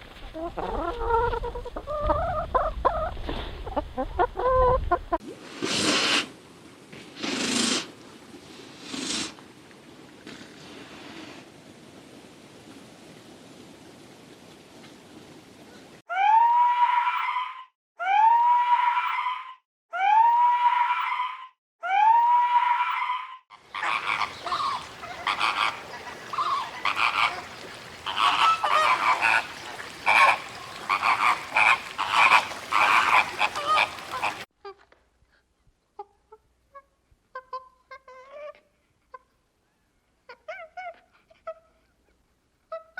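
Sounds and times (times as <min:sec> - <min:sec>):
chorus of overlapping animal calls: 0:16.1 - 0:34.5.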